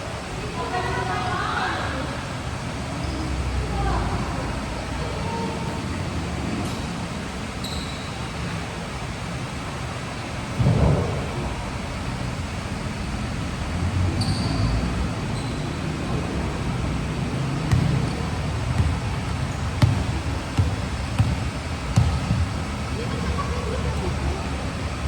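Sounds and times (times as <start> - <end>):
short high squeaks: 7.6 - 8.3, 14.2 - 15.9
rumbling court noise: 10.4 - 25.0.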